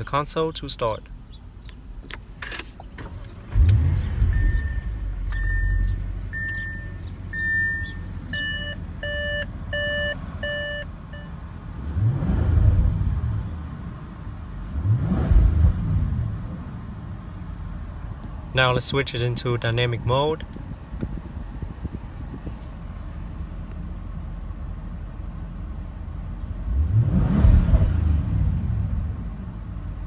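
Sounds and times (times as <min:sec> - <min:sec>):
car engine starting and idling: 0:00.0 - 0:30.0
engine revving: 0:03.0 - 0:08.0, 0:11.8 - 0:13.6, 0:14.7 - 0:16.8, 0:26.6 - 0:29.6
dashboard beeps and chimes: 0:04.2 - 0:11.3.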